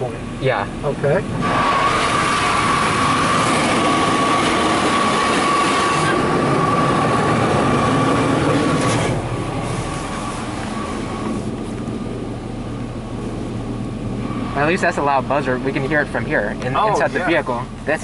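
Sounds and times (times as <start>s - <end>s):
car wash buzzer: 1.4s - 11.5s.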